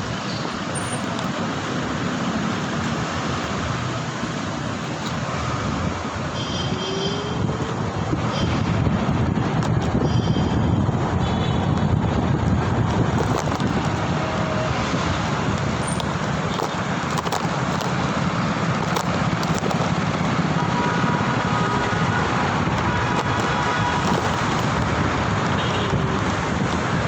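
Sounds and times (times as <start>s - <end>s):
road traffic noise: 0.0s - 27.0s
wind rushing: 7.4s - 27.0s.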